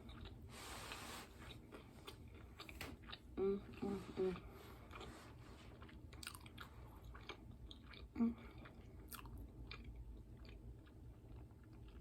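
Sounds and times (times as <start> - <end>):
person chewing wetly: 0.0 - 12.0
person humming: 3.4 - 4.5.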